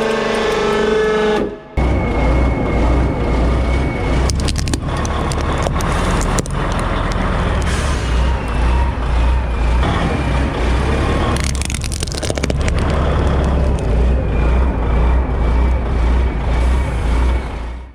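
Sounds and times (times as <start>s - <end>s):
truck engine rumbling: 1.6s - 17.9s
plastic cracking and snapping: 4.3s - 7.7s, 11.3s - 13.9s.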